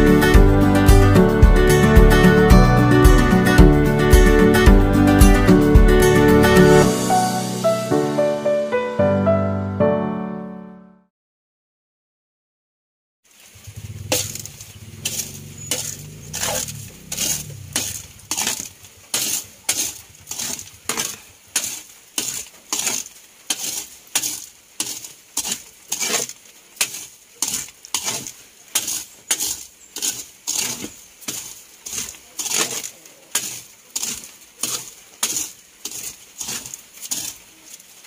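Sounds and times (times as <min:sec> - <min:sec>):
corn kernels rattling in pan: 0:13.4 - 0:38.0
spatula scraping metal wok: 0:14.1 - 0:37.7.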